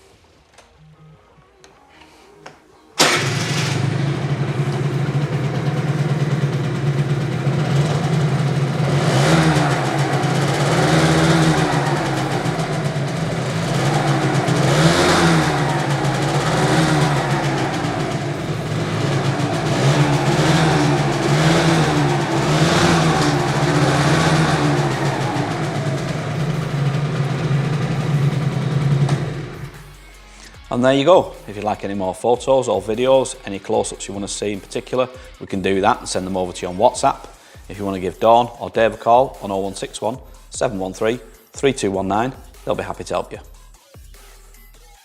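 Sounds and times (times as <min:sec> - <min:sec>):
scooter engine revving: 0:03.0 - 0:29.9.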